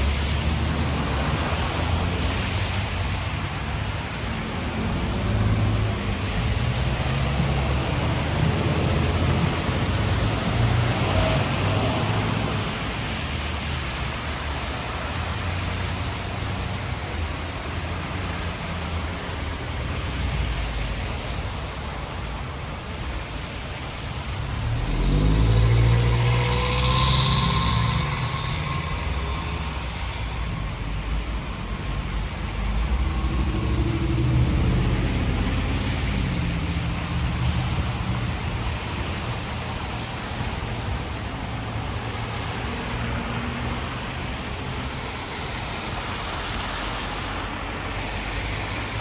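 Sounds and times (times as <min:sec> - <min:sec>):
rushing floodwater: 0:00.0 - 0:49.0
traffic: 0:00.0 - 0:49.0
low rumble: 0:24.3 - 0:38.9.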